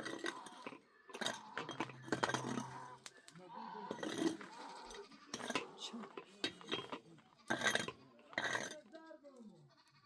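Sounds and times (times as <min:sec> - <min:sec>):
clinks: 0:00.0 - 0:09.0
faint voices: 0:00.0 - 0:10.0
livestock bleating: 0:02.6 - 0:06.0, 0:09.6 - 0:10.0.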